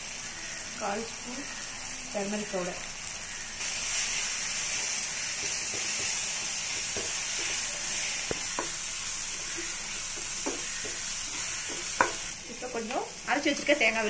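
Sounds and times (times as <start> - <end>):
food sizzling in hot oil: 0.0 - 14.0
spatula stirring in pan: 3.6 - 12.4.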